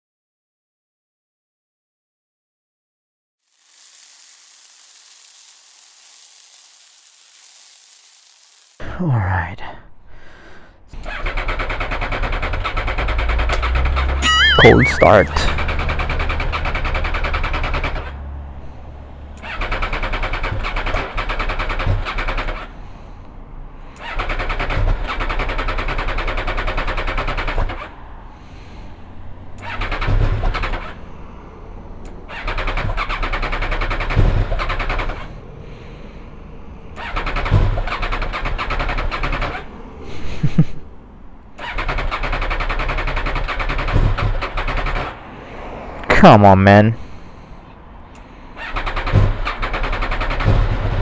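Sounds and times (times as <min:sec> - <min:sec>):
motorcycle engine running: 0:10.9 - 0:23.2.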